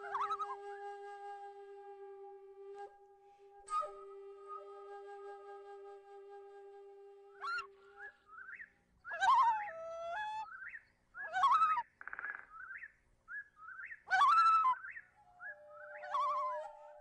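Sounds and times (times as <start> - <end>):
bird whistled calls and chirps: 0.0 - 0.8, 7.4 - 17.0.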